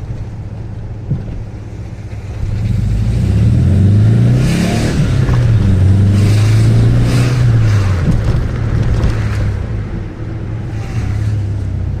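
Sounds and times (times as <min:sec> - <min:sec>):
car engine droning: 0:00.0 - 0:12.0
road noise: 0:00.0 - 0:12.0.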